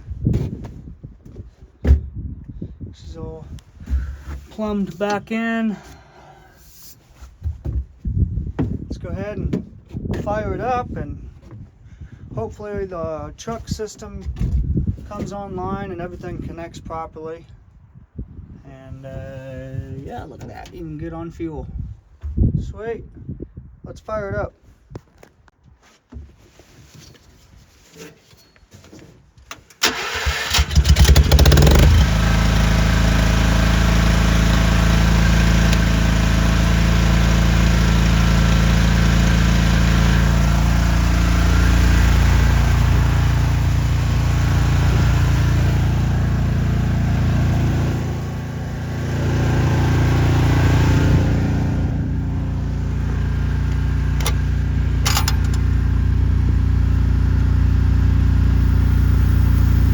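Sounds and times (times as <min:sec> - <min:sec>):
welder engine cranking and running: 0:29.8 - 0:40.7, 0:52.8 - 0:56.0, 0:58.5 - 0:59.9.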